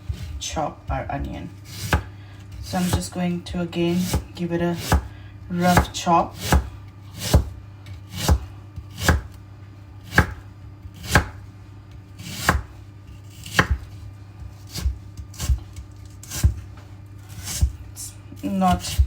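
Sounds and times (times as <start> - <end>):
knife chopping onion on board: 1.6 - 3.2, 3.9 - 9.4, 10.0 - 11.4, 12.1 - 16.7, 17.3 - 17.8, 18.4 - 19.0.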